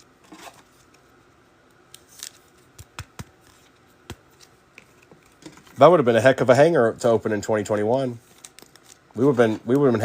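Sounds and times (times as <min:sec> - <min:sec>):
cards clicking and tapping: 0:01.9 - 0:05.5
cards rustling: 0:01.9 - 0:05.8, 0:07.6 - 0:10.0.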